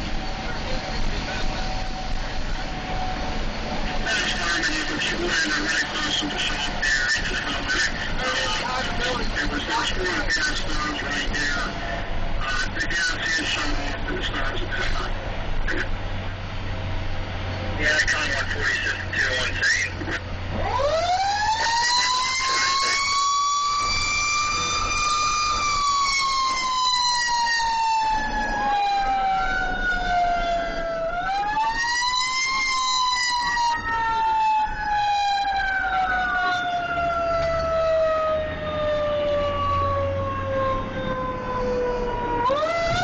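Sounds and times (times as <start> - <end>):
engine and road rumble: 0.0 - 43.0
fire truck siren wailing: 0.0 - 43.0
second fainter siren tone: 20.6 - 43.0.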